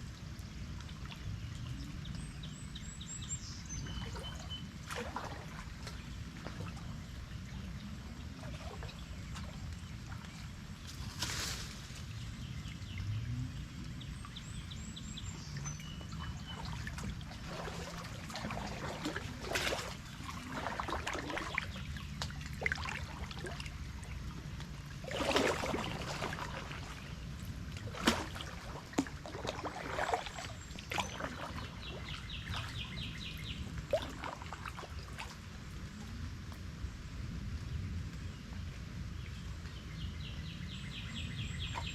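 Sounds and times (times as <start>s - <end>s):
kayak paddle splashing water: 0.0s - 13.0s, 14.2s - 35.9s
birds chirping: 11.7s - 35.2s, 37.8s - 41.9s.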